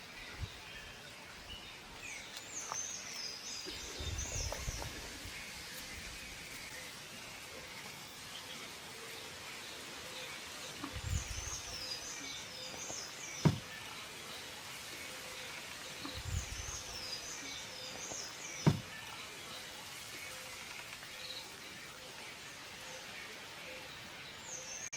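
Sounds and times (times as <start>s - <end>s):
low thump: 13.4s - 13.6s, 18.6s - 18.8s.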